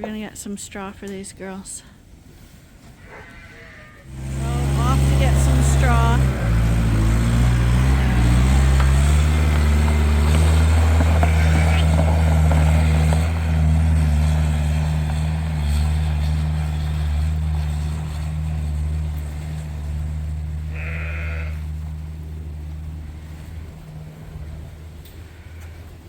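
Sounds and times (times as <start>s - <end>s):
sheep bleating: 3.0s - 6.3s, 7.8s - 8.5s, 11.2s - 11.9s, 20.6s - 21.7s
low mechanical hum: 3.9s - 12.1s, 12.7s - 26.0s.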